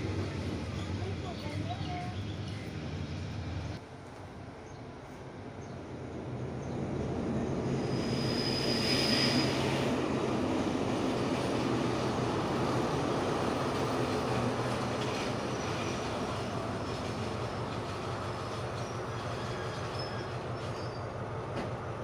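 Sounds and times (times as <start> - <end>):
diesel locomotive engine hum: 0.0 - 22.0
wheel or brake squeal: 7.9 - 9.9, 18.8 - 21.2.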